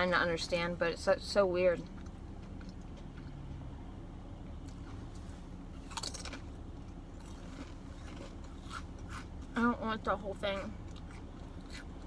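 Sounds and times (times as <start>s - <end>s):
steady low hum: 0.0s - 12.0s
person chewing food: 4.6s - 9.6s, 10.7s - 12.0s.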